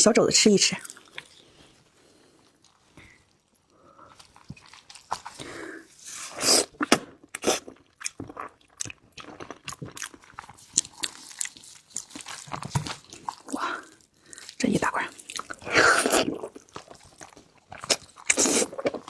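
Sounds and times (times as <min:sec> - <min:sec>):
person chewing with wet smacks: 0:04.1 - 0:05.4, 0:06.6 - 0:19.0.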